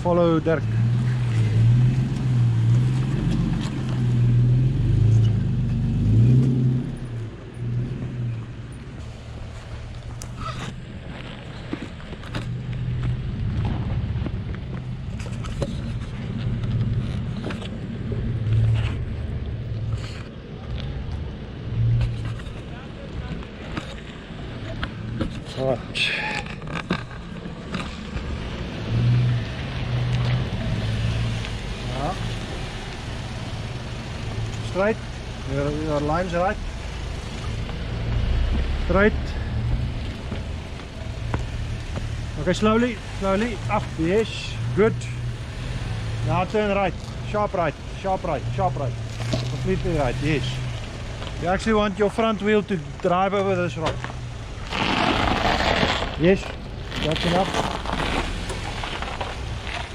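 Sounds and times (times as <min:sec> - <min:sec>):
off-road engine revving over rocks: 0:45.8 - 0:59.9.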